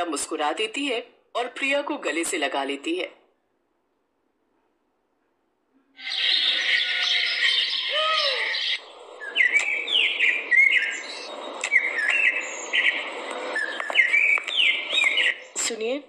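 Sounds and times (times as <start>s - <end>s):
bird swooping call: 6.0s - 11.1s
chorus of high bird chirps: 6.0s - 15.9s.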